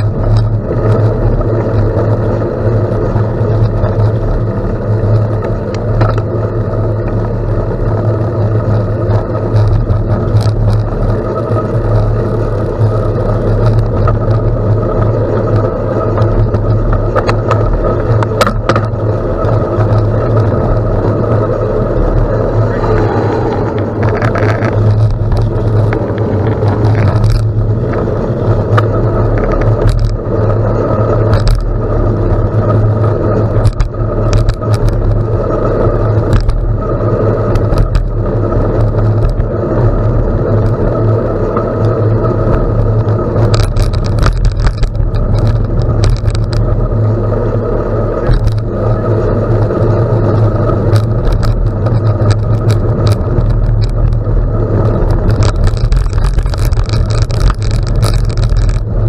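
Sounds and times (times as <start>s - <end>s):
bicycle tyres on gravel: 0.0s - 59.0s
wind buffeting microphone: 0.0s - 59.0s.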